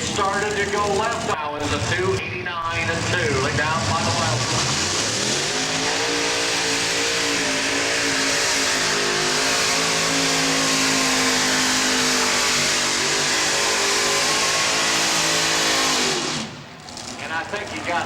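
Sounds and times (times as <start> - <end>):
tractor engine running flat out: 0.0 - 10.3.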